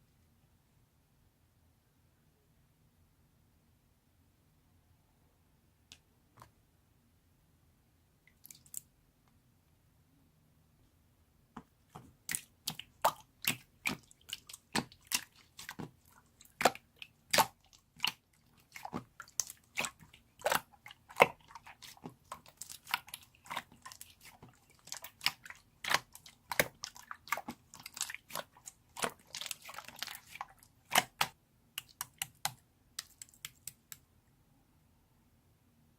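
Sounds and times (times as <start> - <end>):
sticky clicks and bubble pops: 25.1 - 34.0.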